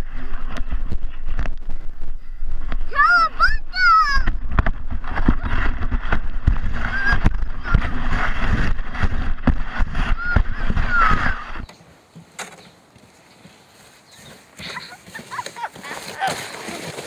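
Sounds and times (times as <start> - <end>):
sled rumbling down snow track: 2.9 - 11.7, 14.6 - 17.0.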